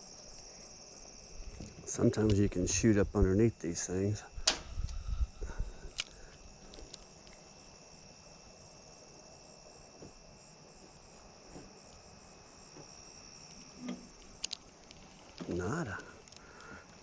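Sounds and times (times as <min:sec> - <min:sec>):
insects chirring: 0:00.0 - 0:17.0
sharp clicks: 0:04.4 - 0:05.0, 0:05.9 - 0:07.4.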